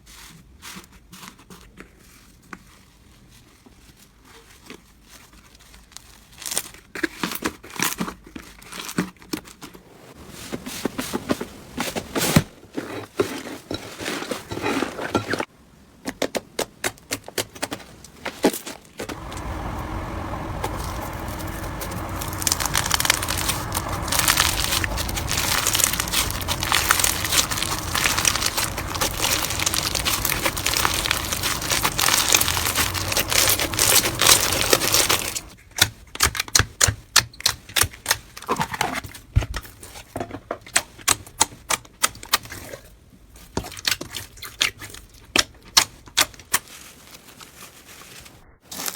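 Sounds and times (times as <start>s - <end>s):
low hum: 19.1s - 35.5s
slime crackling and popping: 20.6s - 35.6s.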